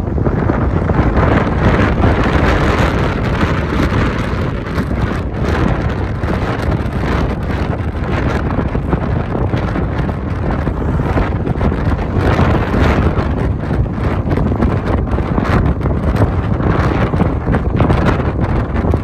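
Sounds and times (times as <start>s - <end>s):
tyre noise on road: 0.0s - 19.0s
wind noise: 0.0s - 19.0s.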